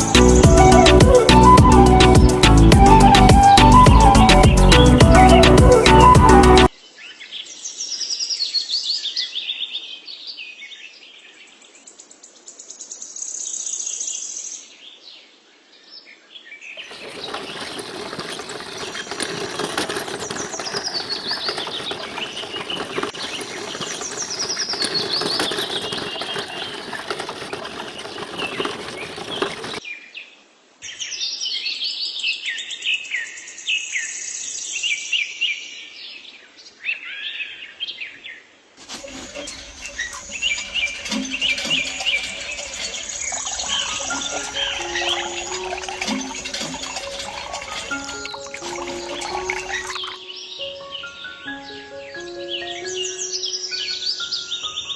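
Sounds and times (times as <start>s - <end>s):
small birds chirping: 39.0s - 54.9s.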